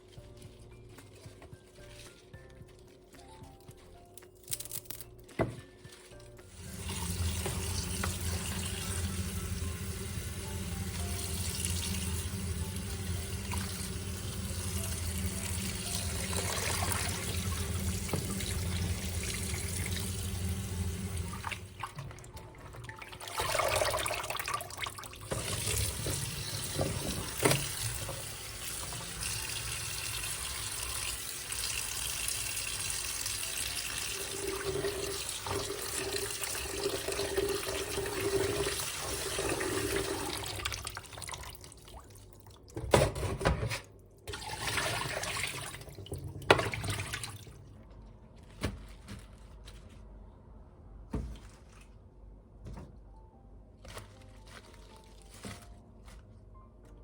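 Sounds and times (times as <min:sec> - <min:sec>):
water running from a tap: 0:06.5 - 0:22.3, 0:22.9 - 0:42.3, 0:44.3 - 0:47.6.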